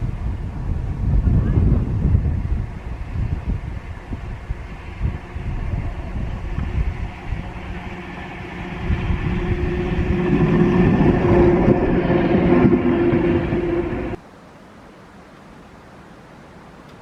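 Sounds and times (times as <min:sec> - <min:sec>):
train running on track: 0:00.0 - 0:14.2
steady whine: 0:02.1 - 0:14.2.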